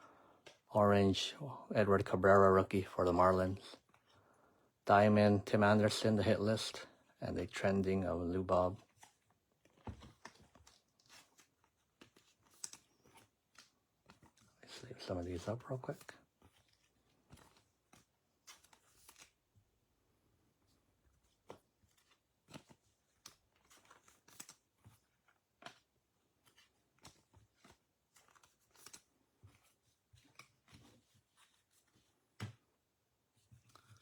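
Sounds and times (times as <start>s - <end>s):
trading cards clicking and rustling: 8.8s - 19.4s, 21.2s - 32.6s.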